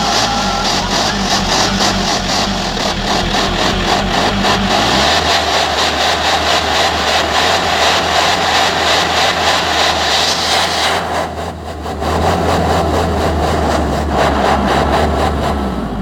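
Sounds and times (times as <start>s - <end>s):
harsh broad hiss: 0.0s - 11.6s
loud vehicle exhaust drone: 0.0s - 16.0s.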